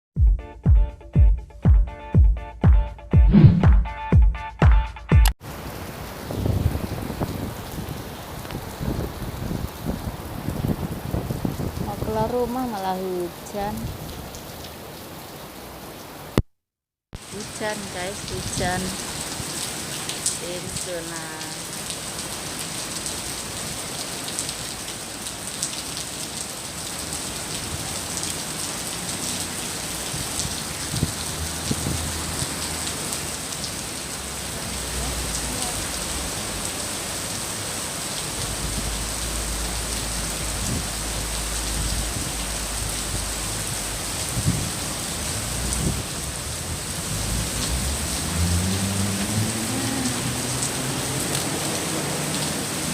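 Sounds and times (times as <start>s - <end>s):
low rumble: 3.3s - 3.8s
rain falling steadily: 5.4s - 16.4s, 17.2s - 52.9s.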